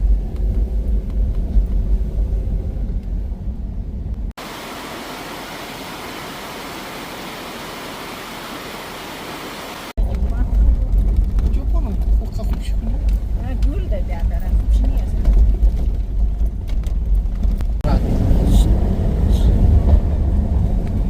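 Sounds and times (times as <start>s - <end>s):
moving car rumble: 0.0s - 21.0s
steady hiss: 4.4s - 10.0s.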